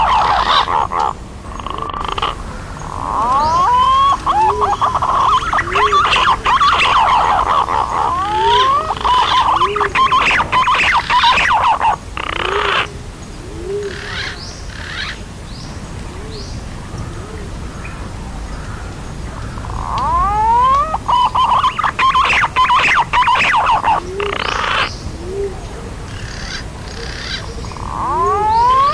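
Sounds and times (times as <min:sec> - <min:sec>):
pigeons whistling: 0:00.0 - 0:01.1, 0:02.2 - 0:12.9, 0:19.6 - 0:25.5, 0:26.4 - 0:28.9
lower hooked bird notes: 0:17.7 - 0:25.5.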